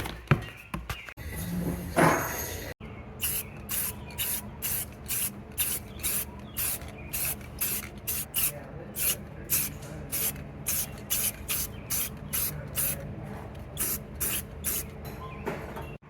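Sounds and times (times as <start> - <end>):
aerosol can spraying: 3.2 - 13.0, 13.8 - 14.9.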